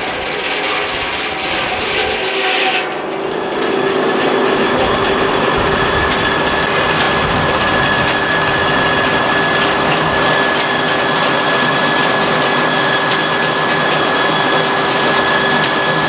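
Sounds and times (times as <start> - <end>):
saw blade cutting log: 0.0 - 7.0
sawmill mechanical whine: 0.0 - 16.0.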